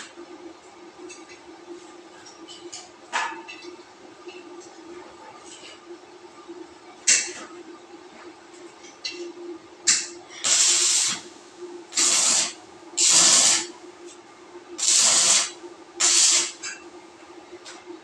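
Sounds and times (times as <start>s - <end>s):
steady hum: 0.0s - 18.0s
power sprayer hissing: 12.0s - 13.7s, 14.8s - 16.5s.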